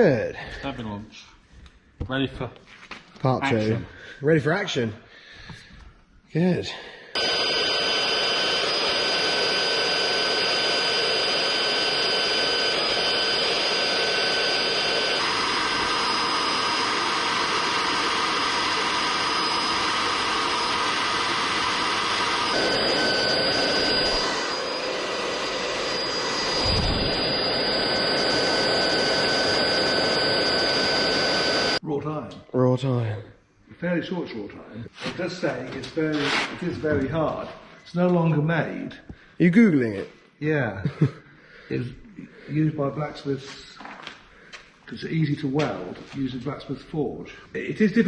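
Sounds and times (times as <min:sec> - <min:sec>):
electric power tool motor whine: 0:07.2 - 0:31.8.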